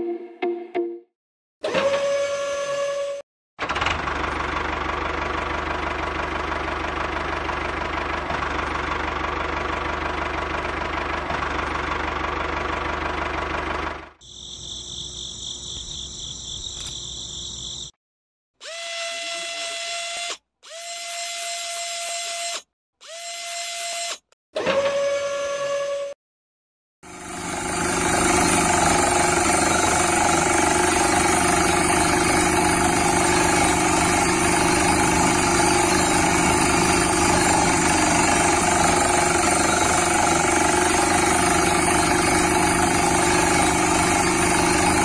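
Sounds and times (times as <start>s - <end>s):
engine running: 3.6s - 14.2s, 27.0s - 45.0s
high machine whine: 27.1s - 45.0s.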